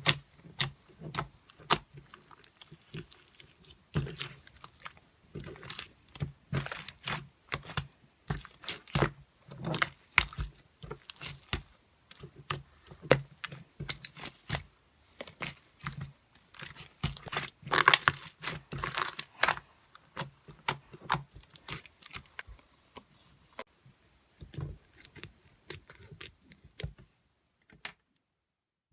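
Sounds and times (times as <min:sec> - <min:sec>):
crunching and crinkling clicks: 0:00.0 - 0:23.1.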